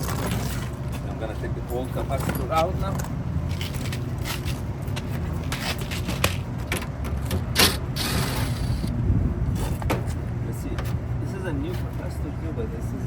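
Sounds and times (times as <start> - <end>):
steady low rumble: 0.0 - 13.0
metal scraping: 7.5 - 8.9.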